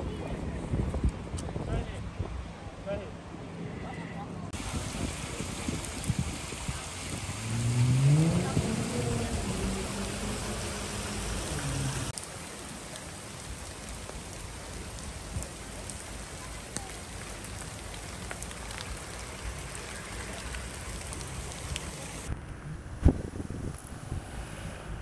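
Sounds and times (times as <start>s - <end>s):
steady rain falling: 4.5s - 22.3s.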